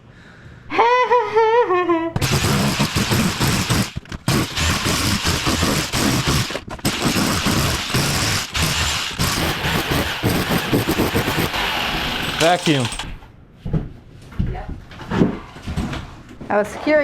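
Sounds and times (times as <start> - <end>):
person humming a tune: 0.7 - 2.2
rotary hammer pounding tile: 2.2 - 13.2.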